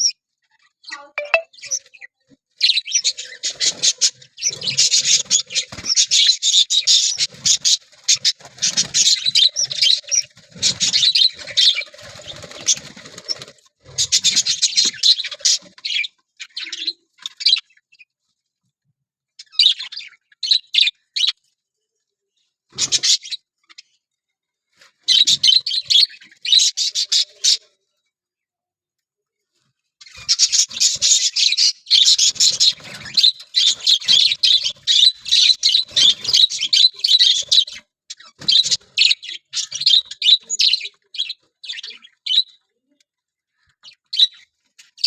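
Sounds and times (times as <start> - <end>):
budgerigars chirping: 2.6 - 13.3, 30.1 - 42.6.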